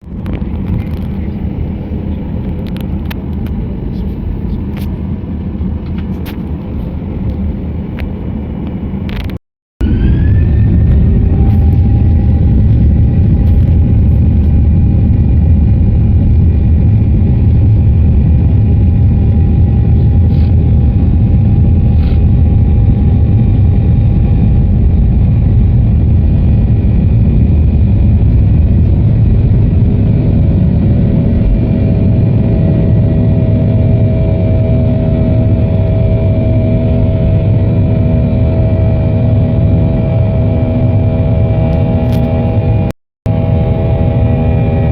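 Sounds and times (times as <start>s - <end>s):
road vehicle rumble: 0.0s - 38.4s
high rising tone: 9.8s - 15.4s.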